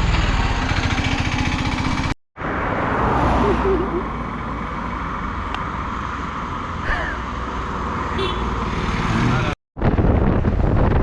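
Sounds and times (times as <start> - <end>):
road rumble: 0.0 - 11.0.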